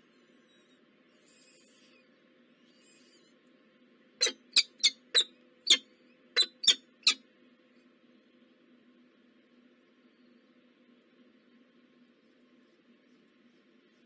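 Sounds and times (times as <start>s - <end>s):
faint steady hum: 0.0s - 14.0s
squeaky bird calls: 4.2s - 5.8s, 6.4s - 7.2s.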